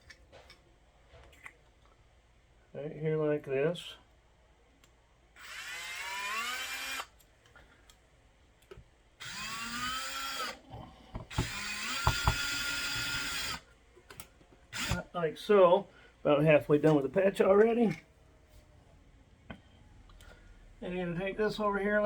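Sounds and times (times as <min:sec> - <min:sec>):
power drill running: 0:05.4 - 0:07.2, 0:09.2 - 0:10.6, 0:11.3 - 0:13.6, 0:14.7 - 0:15.0.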